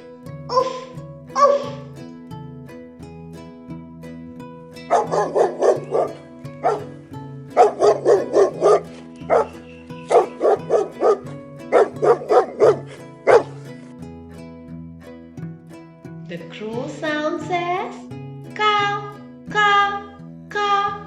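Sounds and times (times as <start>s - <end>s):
background music: 0.0s - 21.0s
dog barking: 1.4s - 1.8s, 4.9s - 6.9s, 7.6s - 13.6s.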